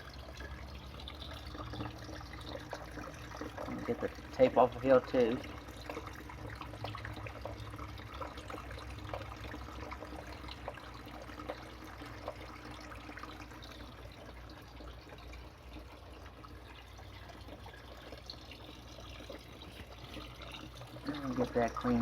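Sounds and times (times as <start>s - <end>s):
water trickling and dripping: 0.0s - 22.0s.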